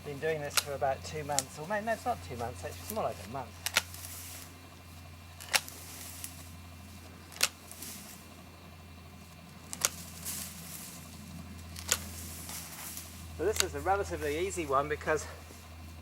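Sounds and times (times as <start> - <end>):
pruning shears snipping: 0.0 - 4.6, 5.3 - 8.3, 9.4 - 14.5
low steady hum: 0.0 - 16.0.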